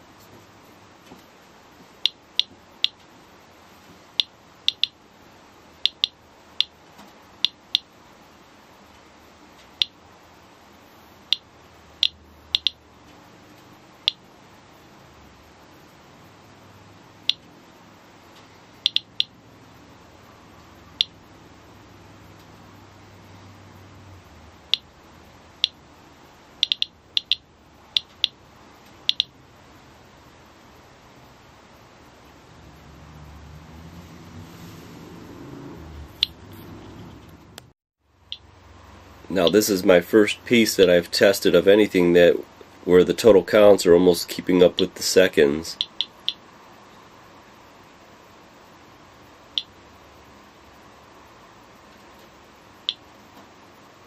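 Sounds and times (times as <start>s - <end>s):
geiger counter clicking: 2.0s - 3.0s, 4.2s - 5.0s, 5.8s - 6.7s, 11.3s - 12.8s, 18.8s - 19.3s, 26.6s - 28.4s, 29.0s - 29.3s, 45.8s - 46.4s.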